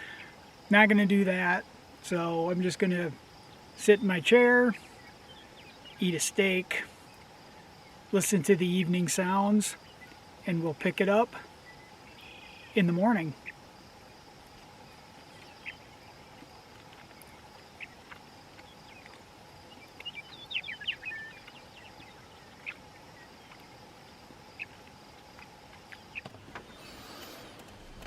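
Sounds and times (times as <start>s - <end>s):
crickets trilling: 0.0s - 28.0s
bird chirps: 11.6s - 13.6s, 14.8s - 16.5s, 17.1s - 23.8s.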